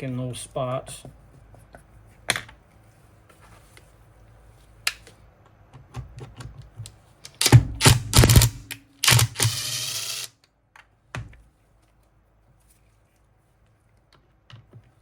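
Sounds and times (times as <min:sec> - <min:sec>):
rapid ratchet clicking: 0:07.3 - 0:10.3.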